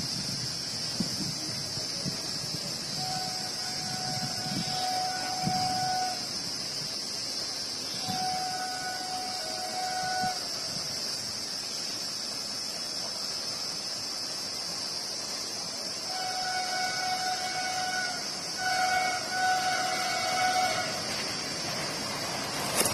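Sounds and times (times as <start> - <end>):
steady high hiss: 0.0 - 22.9
train horn blasts: 2.9 - 6.4, 7.9 - 10.6, 16.0 - 21.2.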